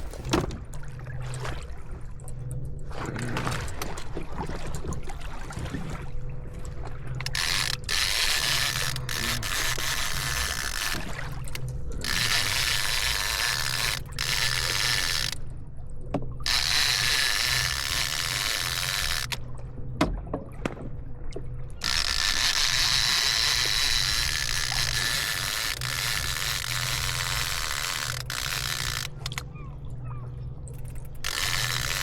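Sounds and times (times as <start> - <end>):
fishing reel gears whirring: 7.1 - 15.5, 16.4 - 19.5, 21.7 - 29.5, 30.6 - 32.0
fishing reel clicks: 7.2 - 15.4, 16.4 - 19.4, 21.8 - 29.5, 30.7 - 32.0.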